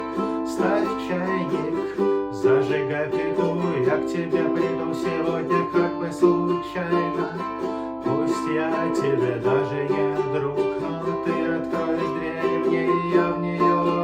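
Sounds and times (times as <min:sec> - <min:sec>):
acoustic plucked string instrument: 0:00.0 - 0:14.0.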